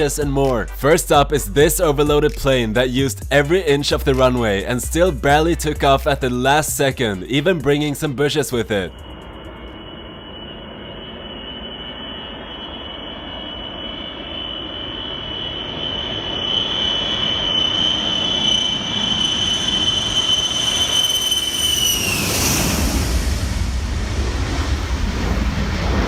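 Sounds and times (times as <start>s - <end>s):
aircraft engines at takeoff power: 7.0s - 26.0s.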